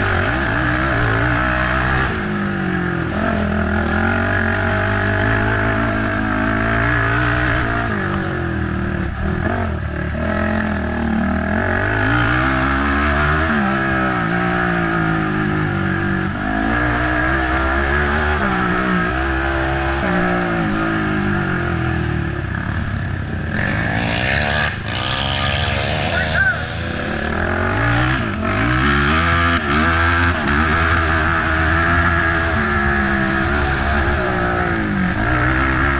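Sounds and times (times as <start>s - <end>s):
atv engine revving: 0.0s - 35.9s.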